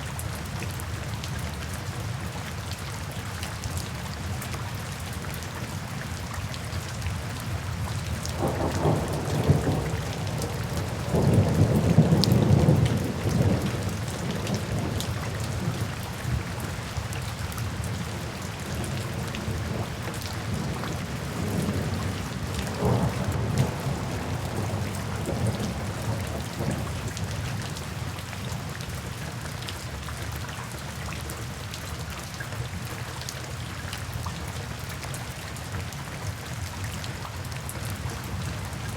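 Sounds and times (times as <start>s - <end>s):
steady rain: 0.0s - 38.9s
rolling thunder: 8.4s - 15.8s, 19.1s - 27.2s.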